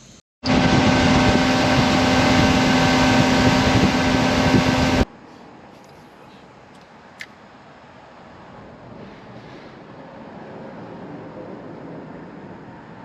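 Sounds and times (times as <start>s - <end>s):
boat motor running: 0.4s - 5.0s.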